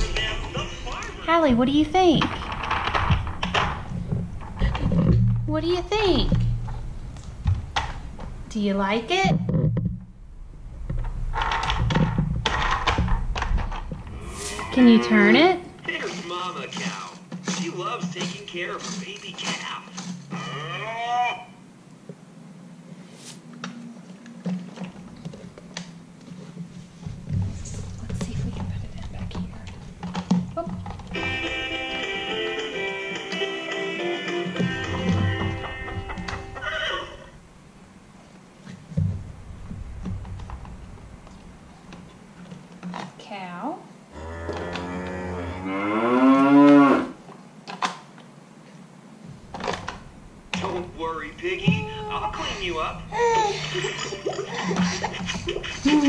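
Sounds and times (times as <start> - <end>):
electronic cow moo: 14.1 - 15.6, 44.1 - 47.2.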